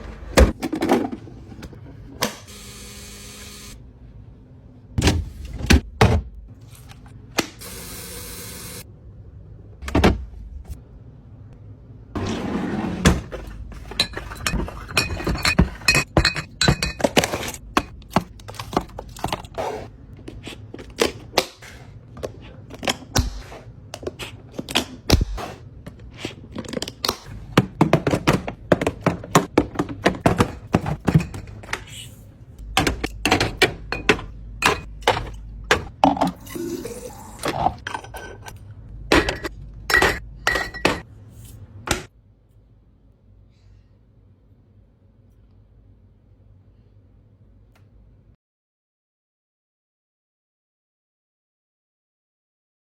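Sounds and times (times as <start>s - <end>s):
jars and bottles knocking and clinking: 13.7s - 19.4s, 27.5s - 31.8s, 32.8s - 36.5s, 37.4s - 41.1s.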